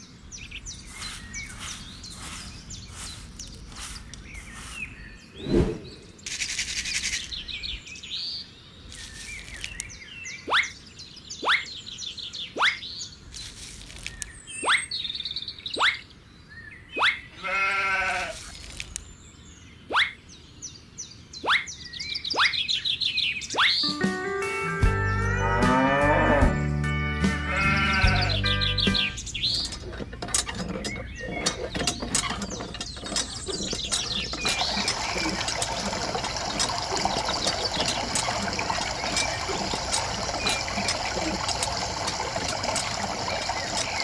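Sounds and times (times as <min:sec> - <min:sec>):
birds chirping: 0:00.0 - 0:44.0
animal bleat: 0:17.4 - 0:18.4, 0:25.3 - 0:26.6, 0:27.3 - 0:28.4.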